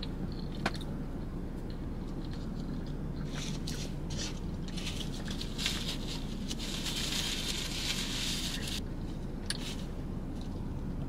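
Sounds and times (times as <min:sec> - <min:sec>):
crunchy chewing of fried food: 0:00.0 - 0:11.0
steady low hum: 0:00.0 - 0:11.0.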